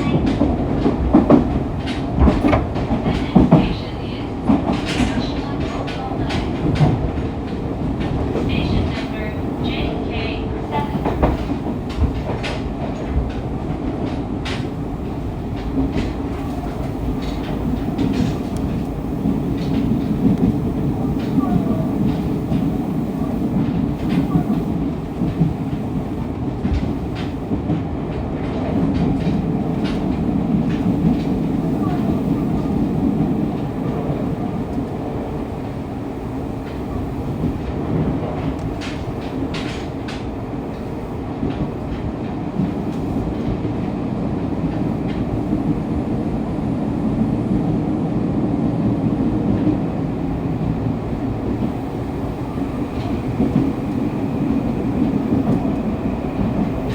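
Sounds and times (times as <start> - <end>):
wheels rumbling on rail: 0.0 - 56.9
wheels clicking over rail joints: 36.6 - 45.8.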